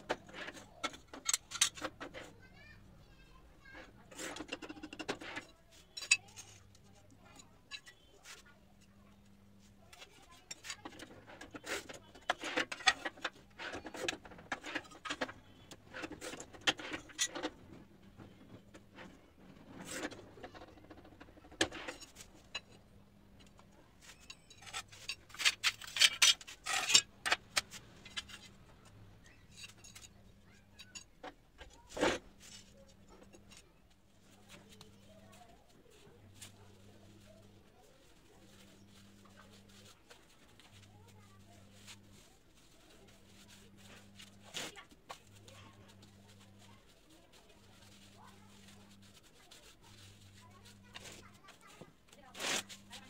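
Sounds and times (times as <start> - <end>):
tiles clattering on concrete: 24.0 - 28.6.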